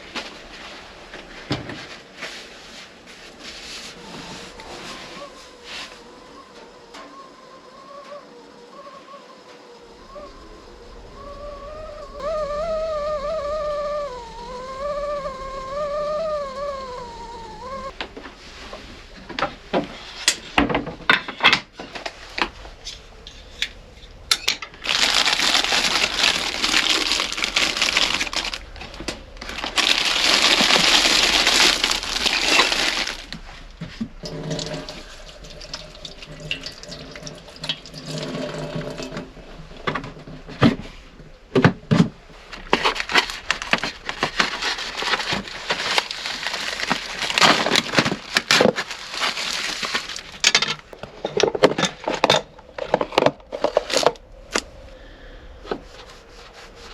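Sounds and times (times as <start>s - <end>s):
water pouring: 24.7s - 39.6s.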